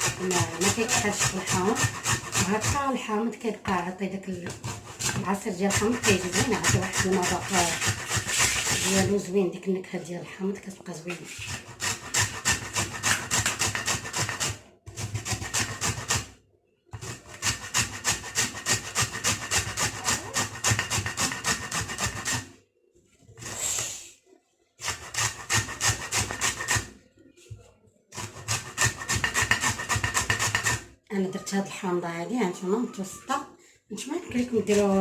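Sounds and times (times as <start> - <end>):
lemon rasping on grater: 0.0 - 2.9, 4.5 - 9.1, 11.1 - 16.3, 17.0 - 22.4, 24.8 - 26.9, 28.2 - 30.8, 34.3 - 35.0.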